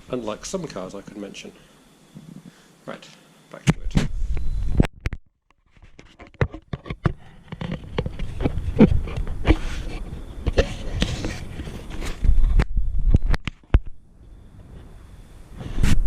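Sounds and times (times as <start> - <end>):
rustling: 5.6 - 13.7
irregular clicks and knocks: 5.9 - 9.6.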